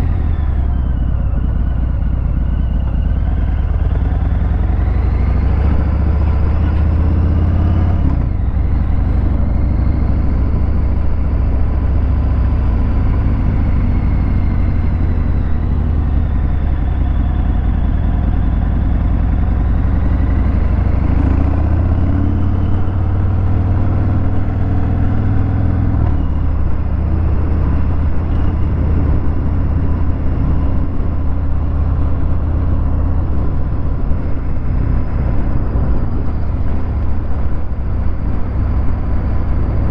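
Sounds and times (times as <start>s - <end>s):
motorcycle engine deep rumble: 0.0s - 39.9s.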